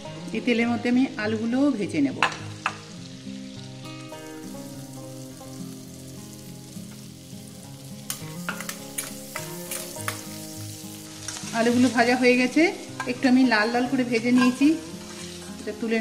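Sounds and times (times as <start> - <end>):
potatoes sizzling in oil: 0.0 - 16.0
metal spatula scraping pan: 14.2 - 15.4.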